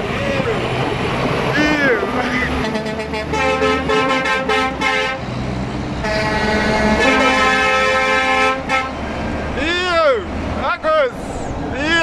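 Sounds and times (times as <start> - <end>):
lorry engine drone: 0.0 - 12.0
truck horn tooting: 1.6 - 5.3, 6.0 - 9.1.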